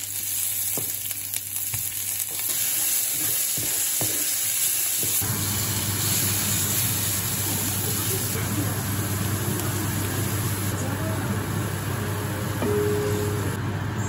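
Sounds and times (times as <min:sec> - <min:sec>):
food sizzling in a frying pan: 0:00.0 - 0:12.6.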